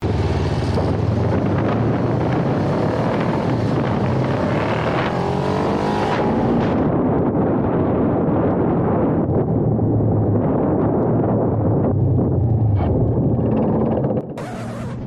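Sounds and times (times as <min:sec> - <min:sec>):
motorcycle engine running: 0:00.0 - 0:05.3
wind buffeting microphone: 0:00.0 - 0:14.4.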